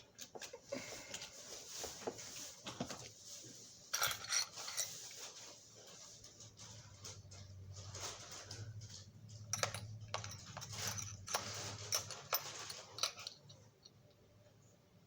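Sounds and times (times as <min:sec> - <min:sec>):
small metal pieces clinking: 0:09.4 - 0:13.6.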